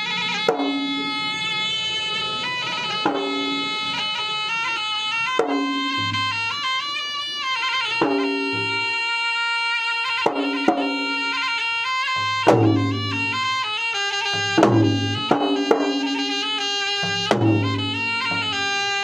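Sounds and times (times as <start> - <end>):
double-reed pipe melody: 0.0 - 19.0
drum strokes and booms: 5.4 - 6.5, 8.0 - 9.0, 10.3 - 11.3, 12.2 - 13.6, 14.4 - 19.0.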